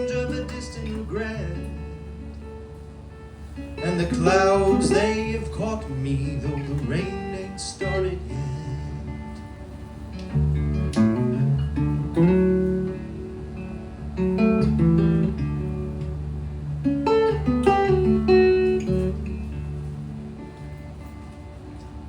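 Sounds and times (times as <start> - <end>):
acoustic guitar picking and strumming: 0.0 - 22.0.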